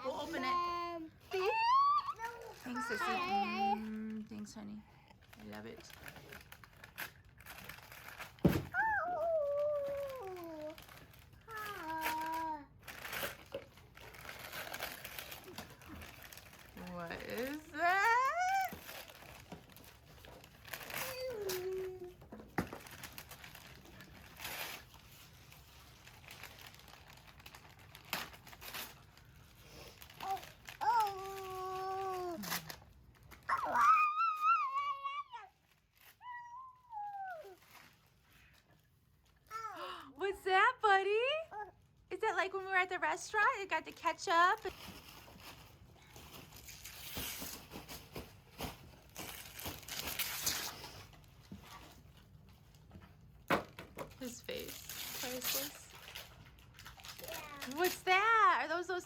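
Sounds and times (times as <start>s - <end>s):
wrapping paper rustling and tearing: 0.0s - 40.0s, 43.3s - 53.4s, 54.2s - 59.0s.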